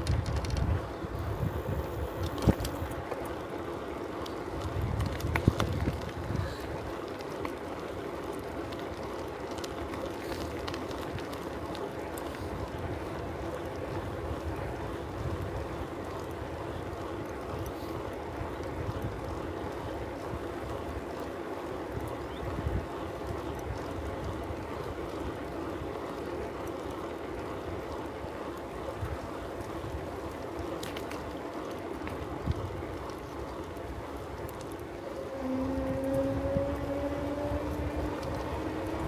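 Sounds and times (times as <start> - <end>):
wind buffeting microphone: 0.0 - 3.1, 4.5 - 7.0, 12.4 - 21.1, 21.9 - 26.0, 32.2 - 39.0
bicycle tyre noise: 0.0 - 39.0.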